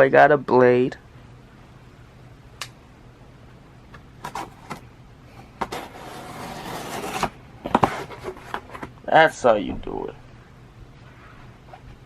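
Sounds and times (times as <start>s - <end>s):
cardboard ripping: 5.6s - 8.9s.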